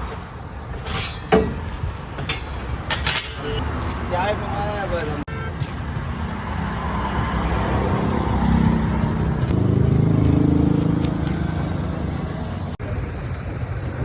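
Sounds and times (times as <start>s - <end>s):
street traffic: 0.0s - 14.0s
vehicle engine passing close: 6.3s - 14.0s.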